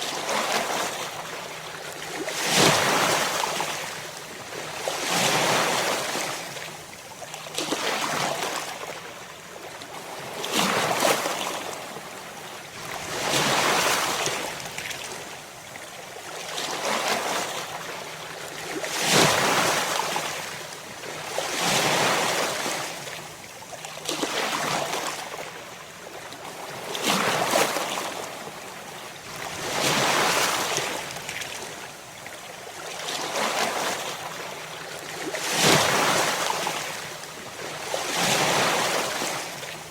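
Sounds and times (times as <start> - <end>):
ocean waves breaking on shore: 0.0 - 6.9, 26.4 - 39.9.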